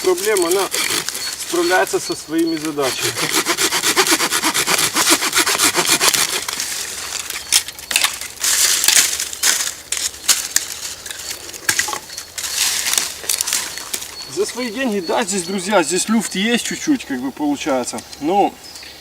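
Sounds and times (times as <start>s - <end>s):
hand saw cutting branch: 0.0s - 7.4s.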